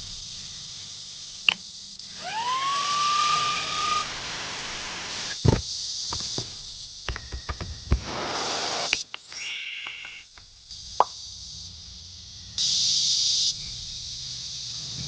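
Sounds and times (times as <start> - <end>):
rain hissing: 2.9 - 15.0
small knocks: 5.4 - 8.0.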